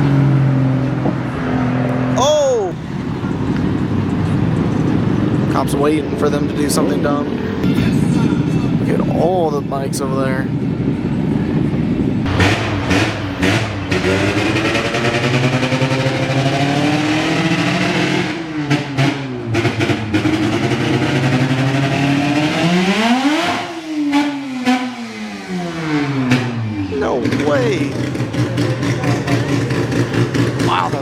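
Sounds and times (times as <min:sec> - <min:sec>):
loud car engines running: 0:00.0 - 0:31.0
engine revving: 0:12.2 - 0:31.0.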